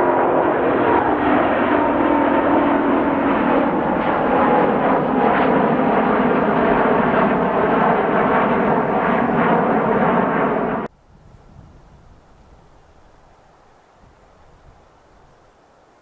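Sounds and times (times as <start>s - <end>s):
jet engines roaring: 0.0s - 10.9s.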